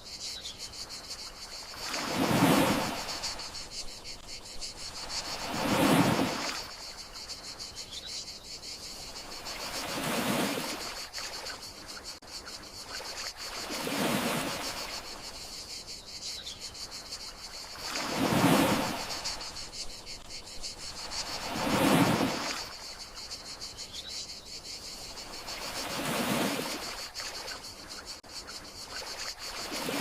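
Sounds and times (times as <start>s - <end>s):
crickets chirring: 0.0s - 30.0s
sea waves washing onto shore: 1.8s - 3.6s, 5.0s - 6.8s, 21.0s - 22.8s.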